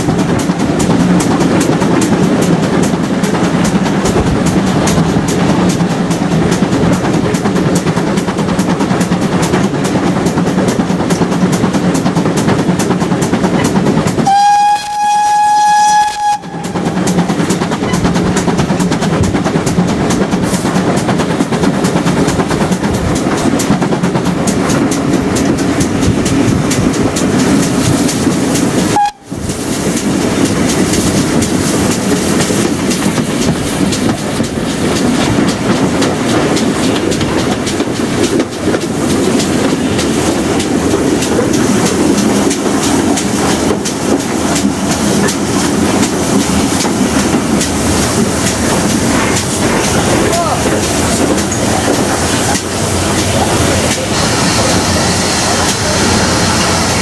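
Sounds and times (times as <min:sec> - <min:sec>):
train wheels on track: 0:00.0 - 0:57.0
train whistle blast: 0:14.2 - 0:16.8, 0:28.9 - 0:29.3.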